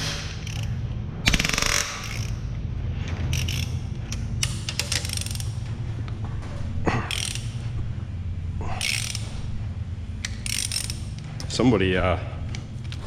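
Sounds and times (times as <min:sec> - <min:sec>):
steady low hum: 0:00.0 - 0:13.0
hand ratchet clicking: 0:03.3 - 0:05.6, 0:07.1 - 0:07.6, 0:08.8 - 0:09.3, 0:10.2 - 0:11.6.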